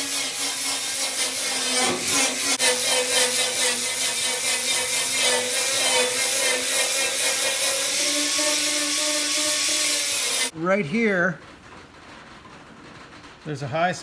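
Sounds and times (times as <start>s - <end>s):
power grinder grinding steel: 0.0s - 10.5s.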